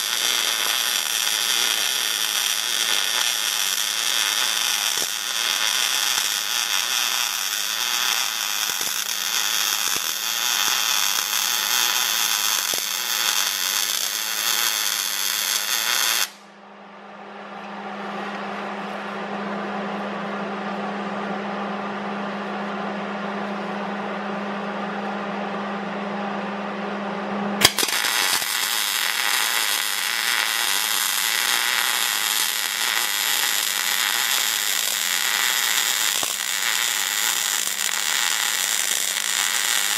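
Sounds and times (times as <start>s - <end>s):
power tool on steel: 0.0s - 16.4s, 27.6s - 39.9s.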